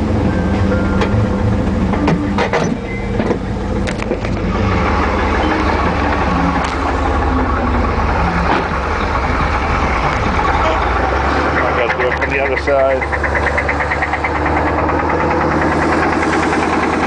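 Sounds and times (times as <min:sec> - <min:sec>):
truck engine idling: 0:00.0 - 0:17.0
sharp clicks and clunks: 0:00.6 - 0:07.2, 0:08.4 - 0:17.0.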